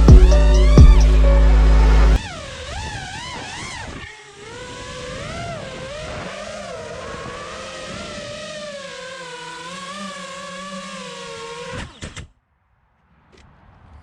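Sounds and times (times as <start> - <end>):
quadcopter motors whining: 2.2 - 12.3.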